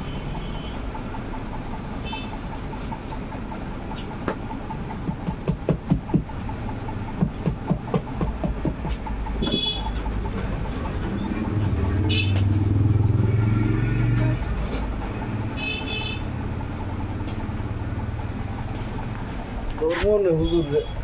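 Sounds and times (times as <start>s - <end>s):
sharp knocks: 4.2s - 6.4s, 7.1s - 10.1s
vehicle engine passing: 9.0s - 20.3s
vehicle horn toots: 9.4s - 10.1s, 12.0s - 14.6s, 15.5s - 16.3s.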